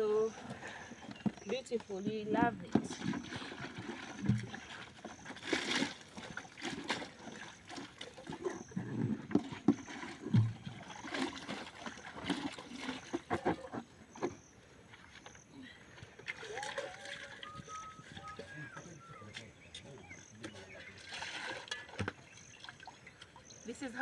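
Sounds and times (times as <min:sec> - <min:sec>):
water sloshing: 0:00.0 - 0:24.0.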